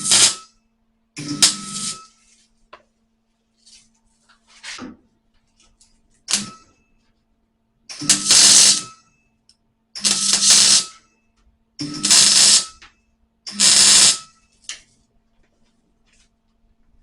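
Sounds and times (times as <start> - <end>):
welder bursts on sheet steel: 0.0 - 0.5, 6.3 - 6.6, 7.9 - 9.0, 10.0 - 11.0, 11.8 - 12.8, 13.5 - 14.4.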